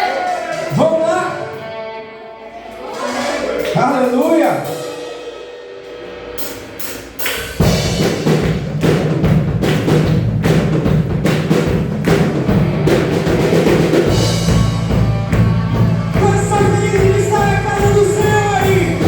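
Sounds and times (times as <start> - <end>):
worship band playing: 0.0 - 19.0
drum hits: 6.4 - 19.0.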